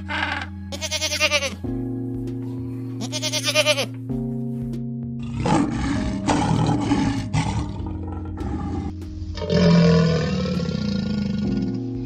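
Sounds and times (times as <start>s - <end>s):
loud animal call: 0.0s - 1.6s
background music: 0.0s - 12.0s
animal roar: 5.2s - 12.0s.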